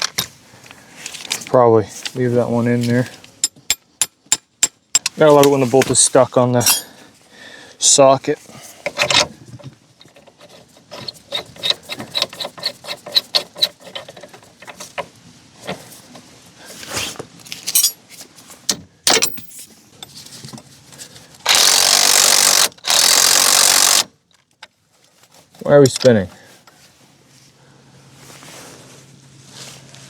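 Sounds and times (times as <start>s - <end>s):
metal clicks and knocks: 8.9s - 15.8s
power tool running: 21.5s - 24.1s
ratchet wrench clicking: 21.5s - 24.1s.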